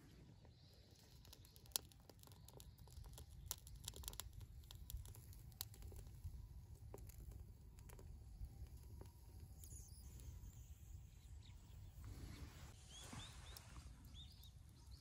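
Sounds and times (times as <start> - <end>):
burning bamboo crackling and snapping: 0.7 - 10.4.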